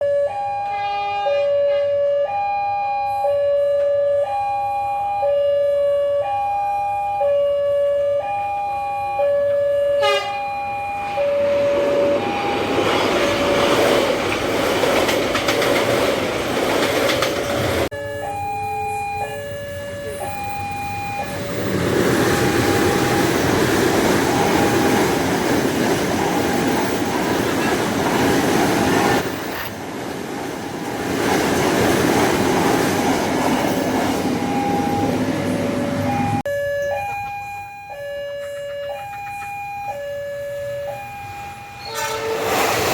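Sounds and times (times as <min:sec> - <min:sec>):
two-tone level-crossing alarm: 0:00.0 - 0:14.2, 0:16.9 - 0:27.5, 0:33.6 - 0:42.4
train wheels rumbling on rails: 0:10.8 - 0:17.9, 0:21.1 - 0:36.4, 0:40.9 - 0:42.9.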